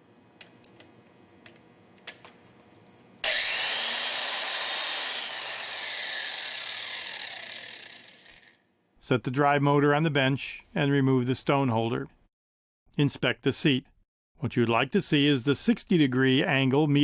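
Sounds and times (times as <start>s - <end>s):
motor winding down whine: 3.2s - 8.6s
valve seat grinder grinding: 3.2s - 8.6s.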